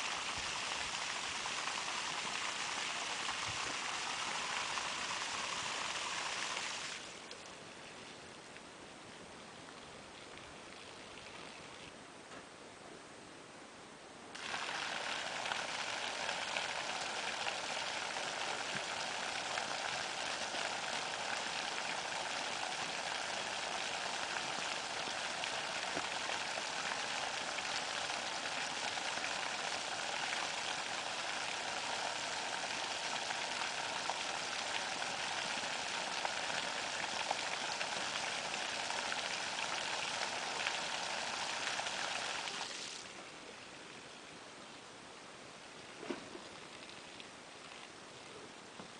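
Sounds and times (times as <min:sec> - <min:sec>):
water rushing from a pipe: 0:00.0 - 0:08.2, 0:14.3 - 0:44.0.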